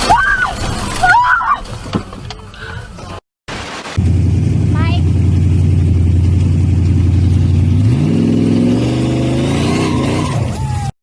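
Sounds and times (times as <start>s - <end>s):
car engine revving: 3.9s - 10.9s.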